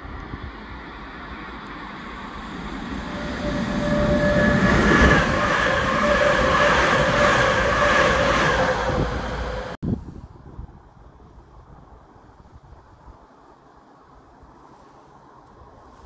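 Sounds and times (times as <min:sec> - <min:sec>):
steady whine: 0:00.0 - 0:09.8
train wheels rumbling on rail: 0:00.0 - 0:09.8.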